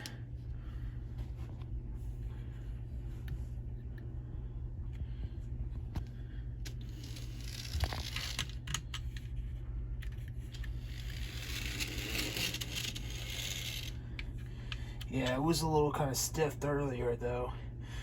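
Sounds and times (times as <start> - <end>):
steady low hum: 0.0 - 18.0
model train motor whir: 6.7 - 8.6, 10.6 - 14.0.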